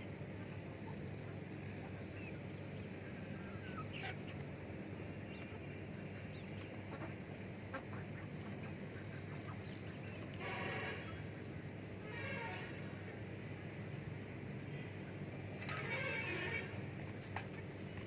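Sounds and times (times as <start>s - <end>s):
ducks quacking softly: 5.4s - 9.6s.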